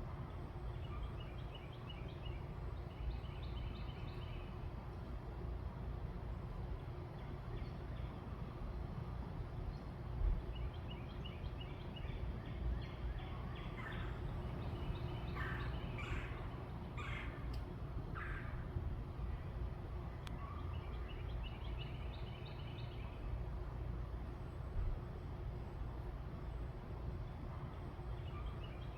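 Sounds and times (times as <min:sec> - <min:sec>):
low outdoor rumble: 0:00.0 - 0:28.9
birds chirping: 0:10.5 - 0:18.6
birds calling harshly: 0:13.1 - 0:18.7.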